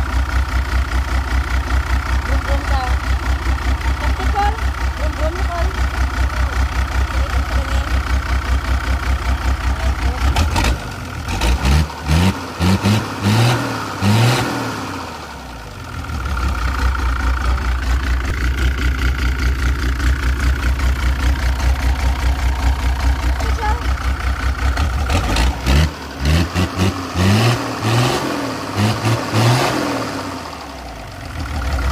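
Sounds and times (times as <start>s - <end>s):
engine idling: 0.0s - 31.9s
engine revving in quick blips: 10.3s - 15.1s, 25.0s - 30.4s.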